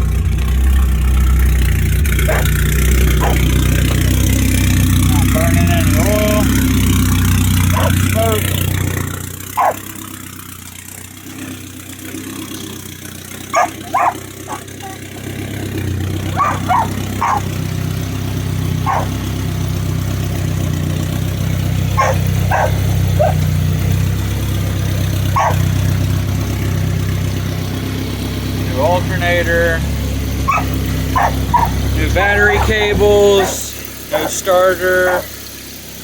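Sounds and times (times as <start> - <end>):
car engine idling: 0.0 - 36.0
dog barking: 2.2 - 2.6, 3.2 - 3.5, 7.7 - 8.1, 9.6 - 9.8, 13.5 - 15.1, 16.3 - 17.5, 18.8 - 19.2, 22.0 - 23.5, 25.4 - 25.7, 30.5 - 34.4, 35.0 - 35.3.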